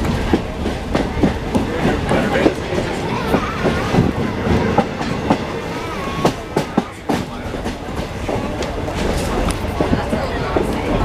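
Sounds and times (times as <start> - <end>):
rail car rattling: 0.0 - 11.0
train wheels clicking over rail joints: 0.0 - 11.0.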